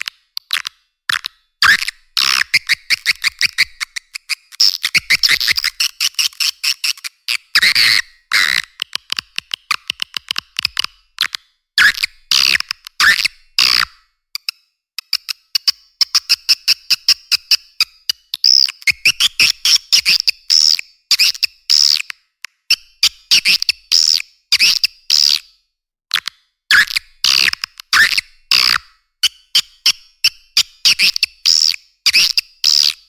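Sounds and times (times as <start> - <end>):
swiftlet calls sharp clicks: 0.0 - 11.4.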